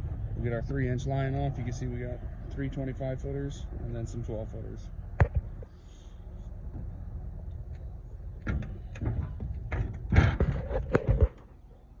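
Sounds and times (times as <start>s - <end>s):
low steady rumble: 0.0s - 12.0s
hose knocking and clunking: 8.4s - 11.4s.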